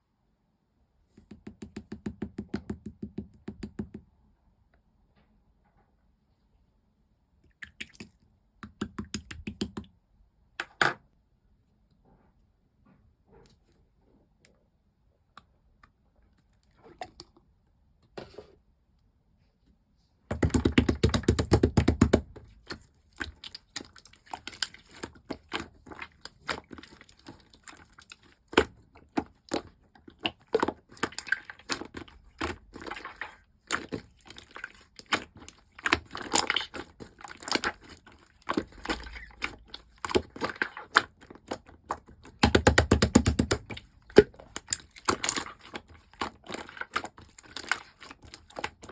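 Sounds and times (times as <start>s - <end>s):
slime squished by hand: 20.3s - 48.9s.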